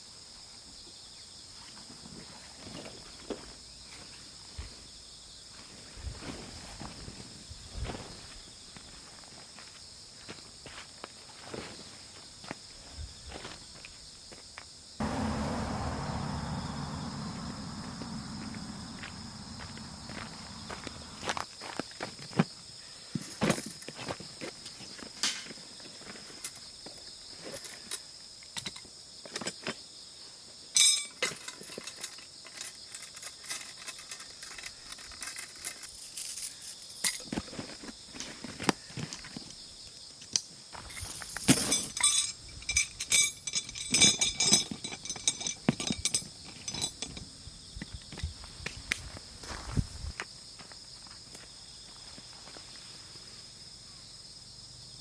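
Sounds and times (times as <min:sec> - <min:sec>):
high-pitched insect chorus: 0:00.0 - 0:55.0
sharp ringing clink: 0:30.8 - 0:31.2, 0:40.9 - 0:47.2
clinking and clatter: 0:30.8 - 0:37.3, 0:40.9 - 0:47.3
clicks and knocks of gear: 0:31.0 - 0:39.6, 0:40.2 - 0:49.1.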